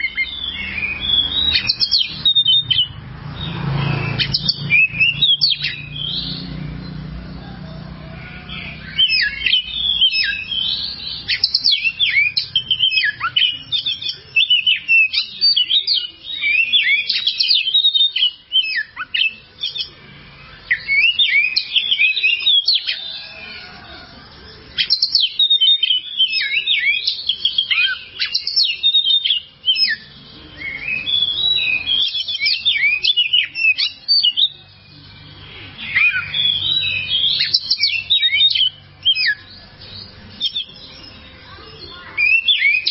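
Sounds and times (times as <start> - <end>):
bird singing: 0.0 - 42.9.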